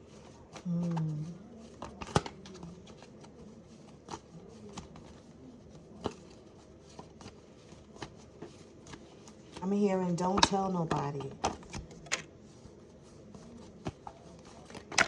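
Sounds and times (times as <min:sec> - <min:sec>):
cards clicking and tapping: 0:11.4 - 0:12.3, 0:14.6 - 0:15.0.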